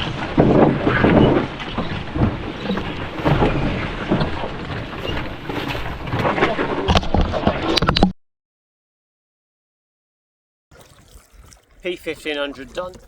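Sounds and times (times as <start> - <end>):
wind rumbling on microphone: 0.0 - 8.0.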